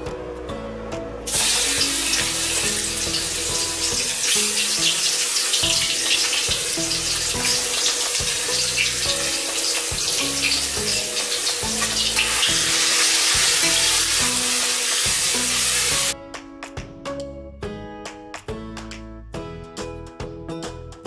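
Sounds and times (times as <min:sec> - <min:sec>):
spice paste sizzling in oil: 0:01.3 - 0:16.2.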